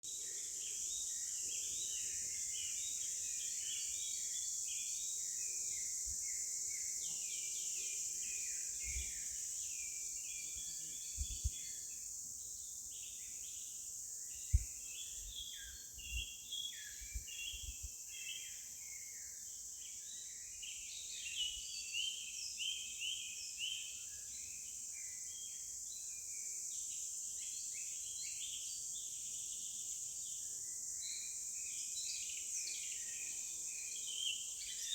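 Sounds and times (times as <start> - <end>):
small birds chirping: 12.8 - 24.3.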